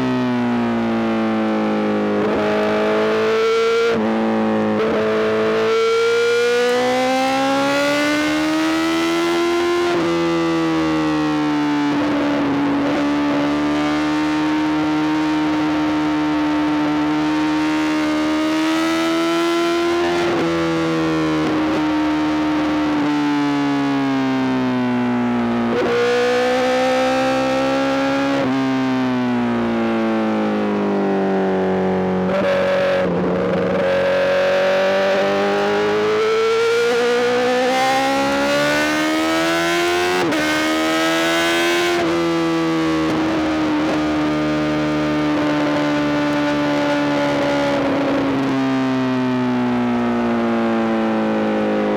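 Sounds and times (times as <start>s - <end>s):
motorcycle engine revving: 12.0s - 23.1s, 25.6s - 48.7s.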